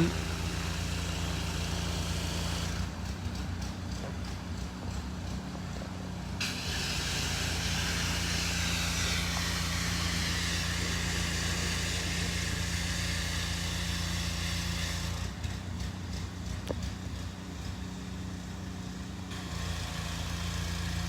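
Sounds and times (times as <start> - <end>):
loud hiss: 6.4 - 13.9.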